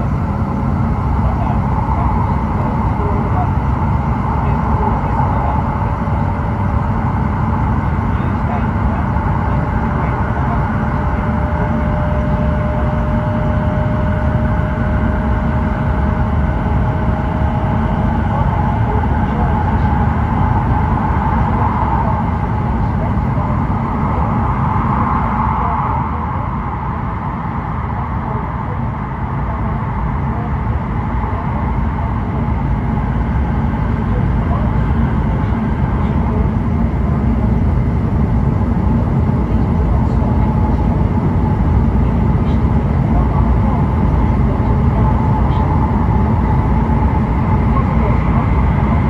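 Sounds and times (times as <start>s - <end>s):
thin steady whine: 0.0s - 49.0s
train cabin rumble: 0.0s - 49.0s.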